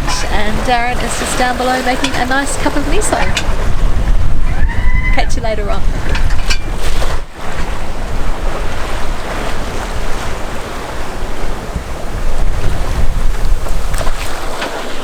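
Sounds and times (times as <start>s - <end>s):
sea water rushing: 0.0s - 15.0s
wind buffeting microphone: 0.0s - 15.0s.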